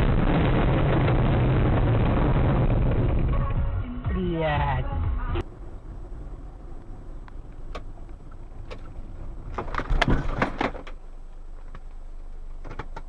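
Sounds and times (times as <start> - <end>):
road rumble: 0.0 - 13.0
car engine: 4.8 - 13.0.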